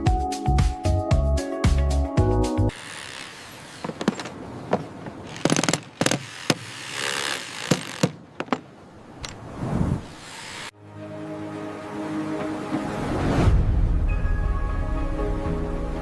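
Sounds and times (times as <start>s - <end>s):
music: 0.0s - 2.7s, 10.8s - 16.0s
hand tools knocking and clicking: 7.6s - 8.7s.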